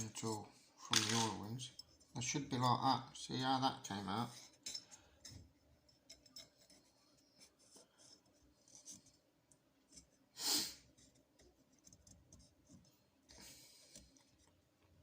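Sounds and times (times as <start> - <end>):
metal parts scraping and clicking: 0.1 - 1.9, 4.4 - 7.0
metal rasp: 4.2 - 9.1.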